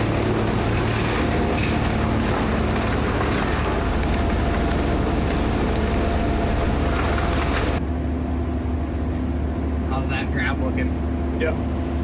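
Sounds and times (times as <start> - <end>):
broad rushing noise: 0.0 - 7.8
diesel engine hum: 0.0 - 12.0.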